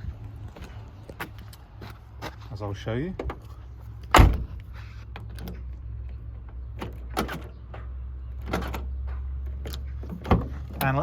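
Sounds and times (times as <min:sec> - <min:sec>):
door lock actuators clunking: 0:04.1 - 0:04.6, 0:06.3 - 0:11.0
loud thump: 0:04.1 - 0:04.6.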